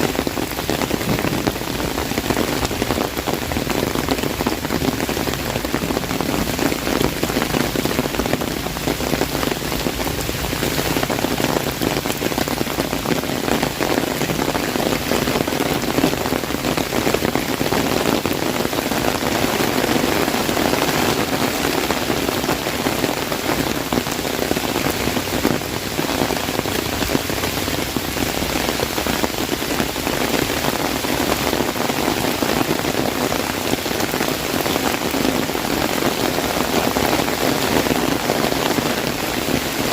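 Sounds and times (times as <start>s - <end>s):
heavy rain on an umbrella: 0.0s - 39.9s.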